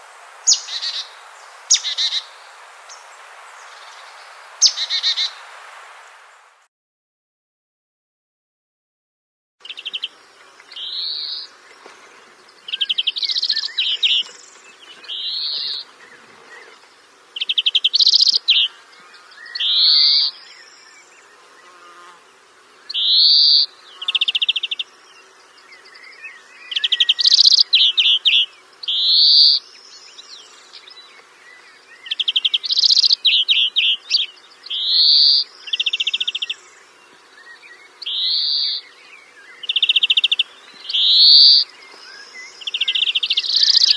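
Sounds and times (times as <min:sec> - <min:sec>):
bird calling: 0:00.4 - 0:05.4, 0:17.4 - 0:22.2, 0:22.9 - 0:29.8, 0:30.8 - 0:43.9.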